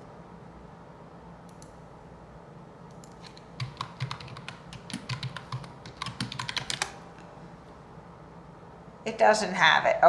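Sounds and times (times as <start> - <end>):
faint low hum: 0.0 - 10.0
keyboard key clicks: 2.9 - 7.0.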